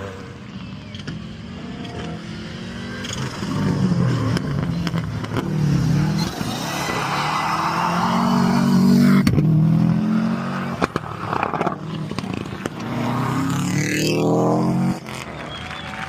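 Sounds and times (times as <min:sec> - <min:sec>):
rally car engine revving: 0:01.0 - 0:15.8.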